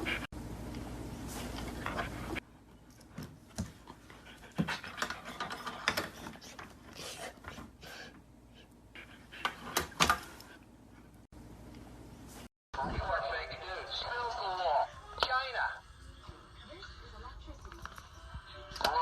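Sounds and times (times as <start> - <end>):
dog panting: 0.0 - 0.3, 1.5 - 10.6.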